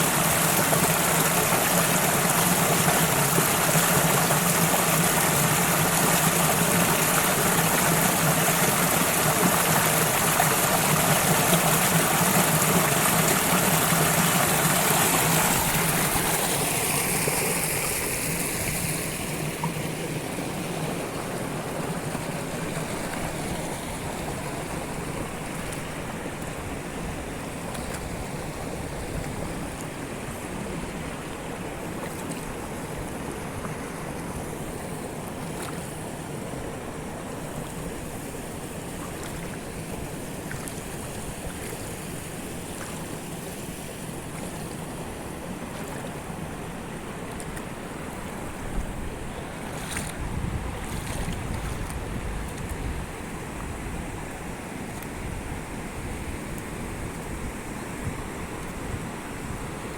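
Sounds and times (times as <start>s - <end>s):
waterfall rushing water: 0.0s - 27.7s.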